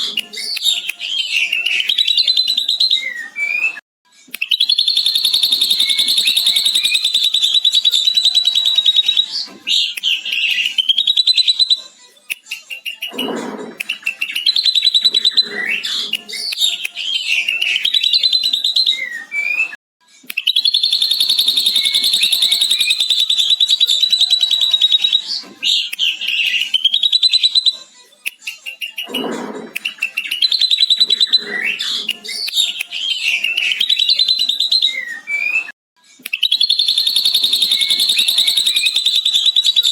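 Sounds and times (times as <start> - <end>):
bird whistled notes and chatter: 0.1 - 3.8, 4.4 - 11.9, 12.7 - 27.9, 28.7 - 35.7, 36.3 - 39.9
bird rapid high trill: 4.6 - 9.3, 20.6 - 25.3, 36.5 - 39.9.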